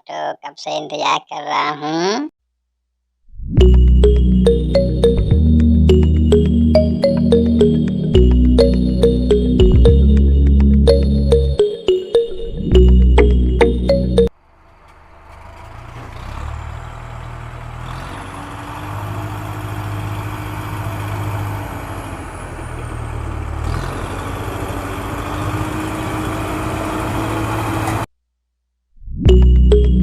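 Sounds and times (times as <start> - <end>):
auto-rickshaw engine running: 3.6 - 11.5, 12.7 - 28.1.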